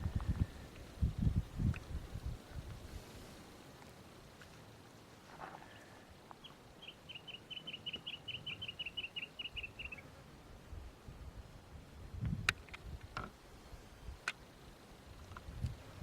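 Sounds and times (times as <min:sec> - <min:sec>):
songbird trilling: 0:06.4 - 0:10.1.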